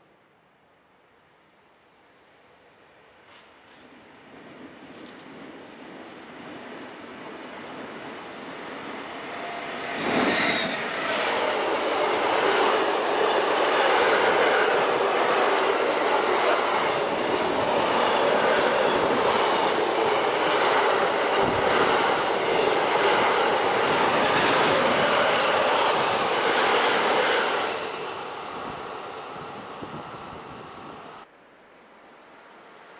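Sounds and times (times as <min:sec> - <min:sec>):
train wheels rushing on rails: 0:03.2 - 0:31.2
train passing: 0:03.3 - 0:31.3
high-pitched shriek: 0:09.0 - 0:11.6.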